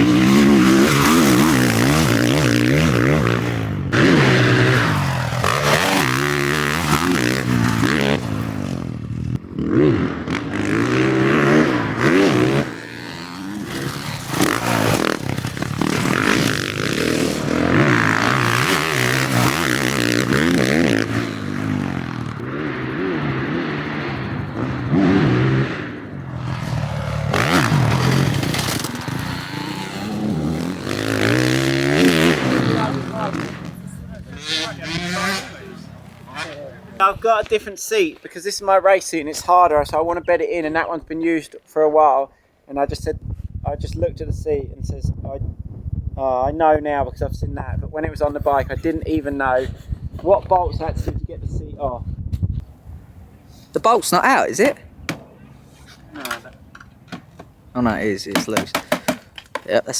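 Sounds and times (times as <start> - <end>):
motocross bike engine revving: 0.0 - 37.5.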